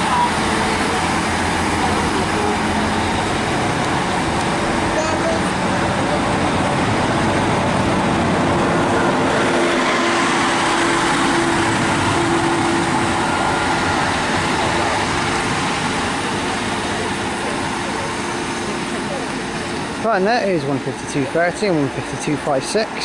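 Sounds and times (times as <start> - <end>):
diesel train engine rumbling: 0.0 - 23.0.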